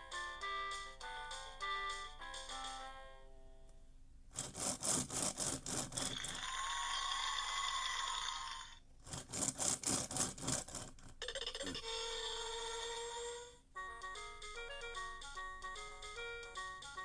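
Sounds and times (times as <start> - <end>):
toy car rasping strokes: 4.4 - 13.6
toy car buzzing with tones: 4.5 - 8.8, 10.6 - 13.7.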